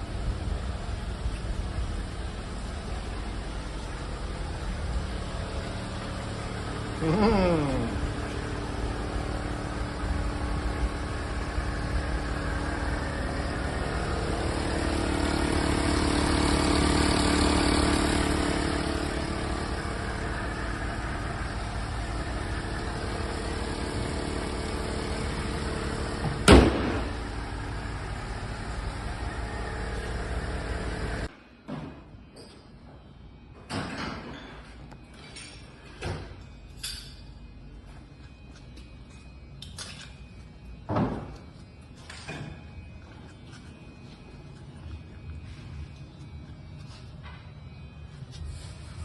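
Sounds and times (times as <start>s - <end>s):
car engine idling: 0.0s - 31.3s.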